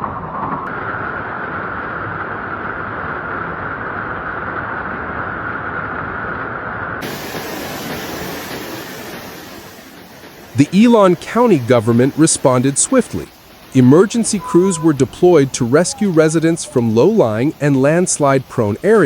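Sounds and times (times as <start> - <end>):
rushing hissing noise: 7.0 - 19.0.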